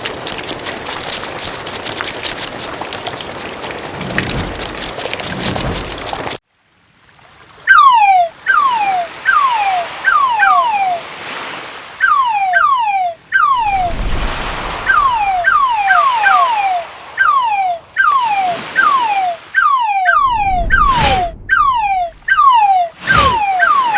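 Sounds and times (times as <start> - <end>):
falling whistled calls: 7.7 - 23.9
surf washing: 7.8 - 23.9.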